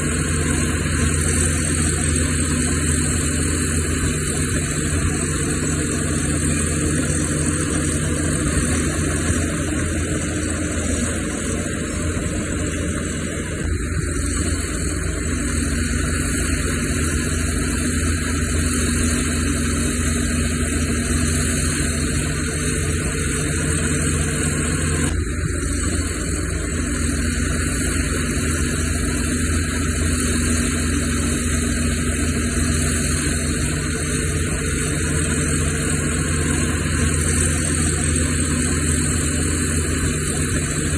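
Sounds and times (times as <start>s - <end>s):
heavy diesel machinery running: 0.0s - 40.9s.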